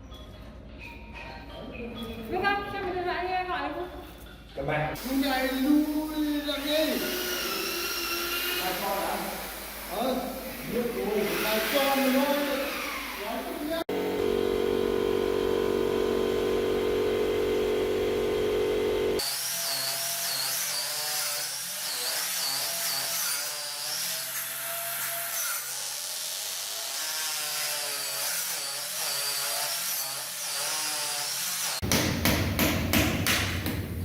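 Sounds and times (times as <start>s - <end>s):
power tool cutting wood: 6.2s - 31.8s.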